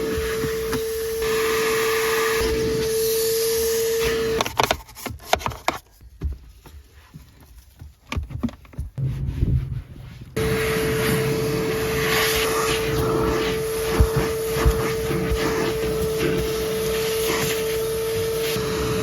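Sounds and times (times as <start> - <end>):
vacuum cleaner running: 0.0 - 4.4, 10.4 - 19.0.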